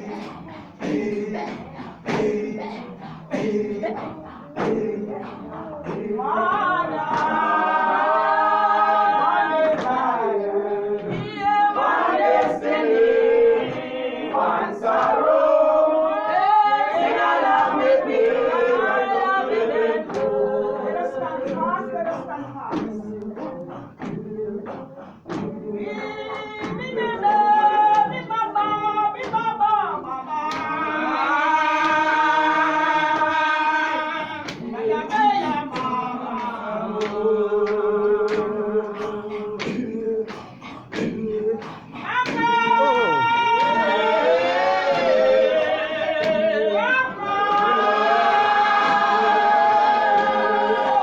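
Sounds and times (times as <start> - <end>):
sharp beat: 0.0 - 16.0, 17.0 - 29.6
choir singing a cappella: 0.0 - 51.0.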